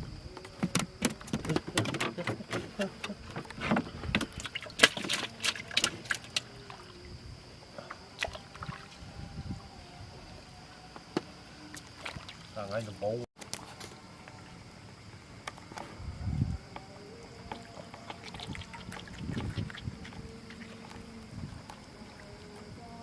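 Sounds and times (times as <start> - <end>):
knocks and clatter on a boat: 0.4 - 6.2
water splashes: 1.4 - 7.1, 8.1 - 9.0, 11.7 - 13.0, 17.4 - 23.0.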